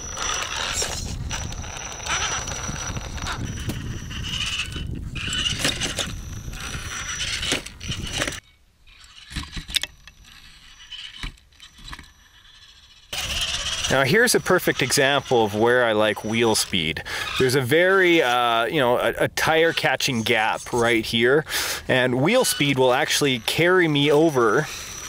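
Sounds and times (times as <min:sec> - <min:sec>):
tires scrabbling over rock: 0:00.0 - 0:08.4, 0:09.0 - 0:25.0
electric motor whine: 0:00.0 - 0:25.0
scattered clicks and knocks: 0:09.2 - 0:10.4.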